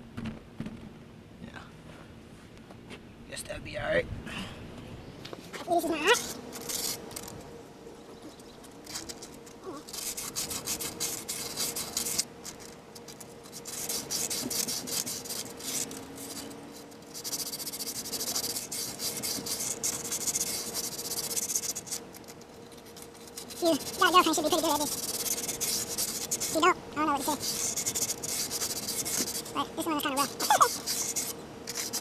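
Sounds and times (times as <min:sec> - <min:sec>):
sandpaper rubbing in metal bore: 0:05.7 - 0:07.3, 0:08.6 - 0:32.0.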